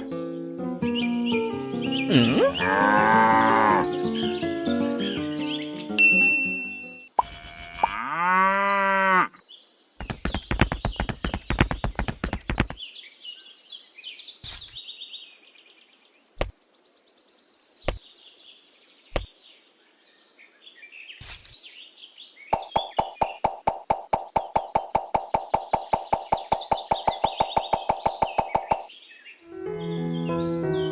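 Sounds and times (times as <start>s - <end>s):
cow mooing: 2.1s - 4.0s, 7.3s - 9.4s
knocks: 10.0s - 12.8s, 22.6s - 28.9s.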